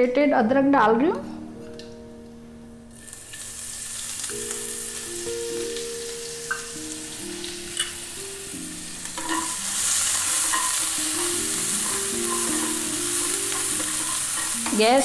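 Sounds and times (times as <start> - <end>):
spices sizzling in hot oil: 2.9 - 15.0
spoon stirring in pan: 9.1 - 15.0.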